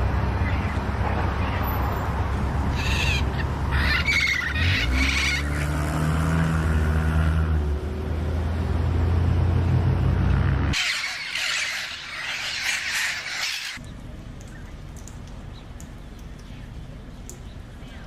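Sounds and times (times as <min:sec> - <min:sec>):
parrots squawking: 0:02.7 - 0:05.7, 0:10.7 - 0:13.8
low engine hum: 0:04.5 - 0:10.8.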